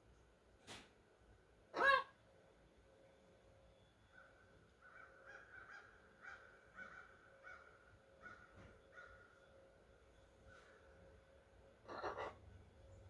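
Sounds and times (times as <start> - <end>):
faint short animal calls: 1.7 - 2.2, 11.8 - 12.5.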